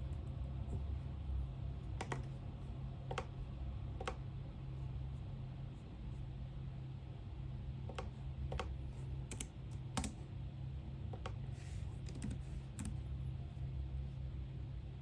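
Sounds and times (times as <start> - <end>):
steady low hum: 0.0 - 15.0
keyboard keystrokes: 2.0 - 2.3, 3.1 - 3.3, 4.0 - 4.2, 7.9 - 10.2, 12.0 - 13.0.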